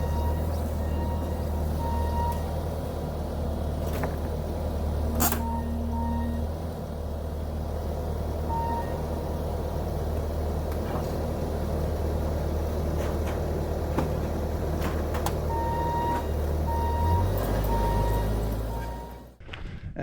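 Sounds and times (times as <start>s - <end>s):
reversing alarm beeping: 0.0s - 2.5s, 5.1s - 6.6s, 8.4s - 9.2s, 15.4s - 19.4s
diesel engine running: 0.0s - 19.4s.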